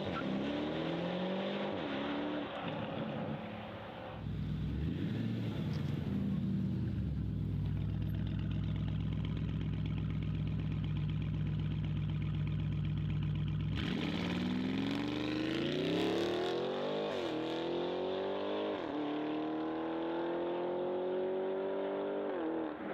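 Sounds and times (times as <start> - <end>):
car engine droning: 0.0 - 22.9
car accelerating hard: 13.7 - 22.9.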